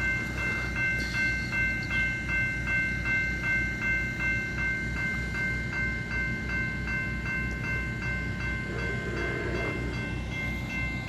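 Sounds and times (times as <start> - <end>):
bell ringing: 0.0 - 11.0
train rumbling on rails: 0.0 - 11.0.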